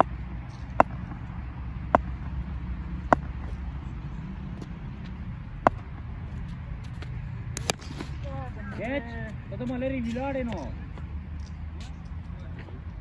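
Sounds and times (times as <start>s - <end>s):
sharp knocks: 0.0s - 1.3s, 1.9s - 2.4s, 3.0s - 3.6s, 5.6s - 6.0s.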